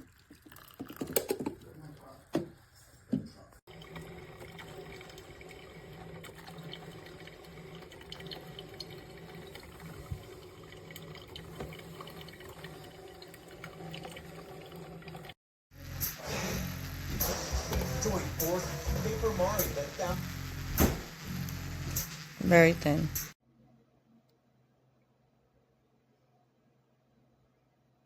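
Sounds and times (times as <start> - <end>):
water trickling: 3.7 - 15.4.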